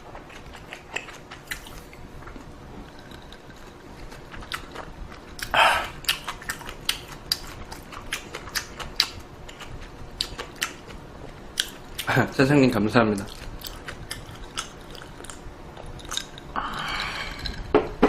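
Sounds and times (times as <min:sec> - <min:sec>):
chewing with mouth clicks: 0:00.1 - 0:12.2, 0:13.1 - 0:17.7.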